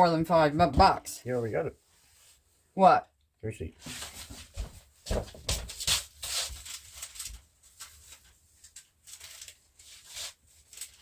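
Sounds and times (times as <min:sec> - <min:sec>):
groceries and papers rustling: 0:03.8 - 0:11.0.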